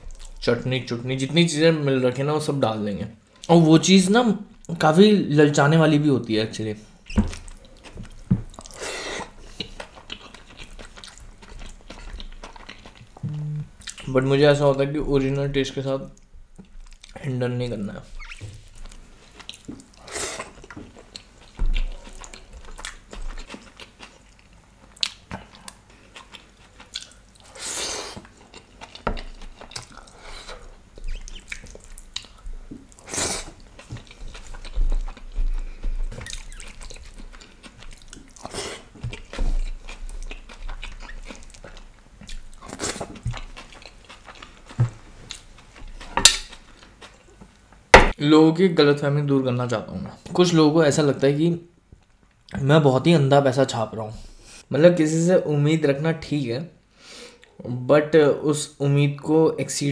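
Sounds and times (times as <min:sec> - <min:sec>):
man chewing food: 0:00.0 - 0:00.4, 0:07.1 - 0:14.1, 0:16.1 - 0:17.2, 0:18.2 - 0:48.1
wet mouth noises: 0:12.6 - 0:14.0, 0:29.2 - 0:38.6.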